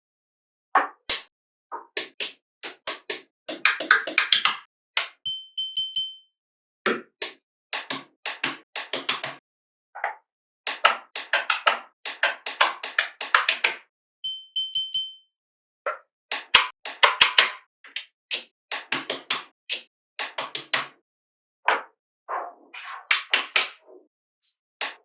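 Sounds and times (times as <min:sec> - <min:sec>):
magnetic balls clicking together: 0:02.0 - 0:05.2, 0:07.2 - 0:09.4, 0:10.7 - 0:13.8, 0:16.3 - 0:17.6, 0:18.3 - 0:20.9.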